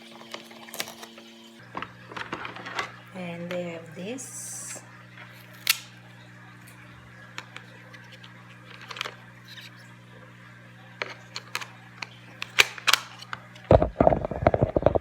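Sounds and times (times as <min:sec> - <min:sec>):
plastic packaging clicks and rustles: 0:07.4 - 0:09.8, 0:11.0 - 0:15.0.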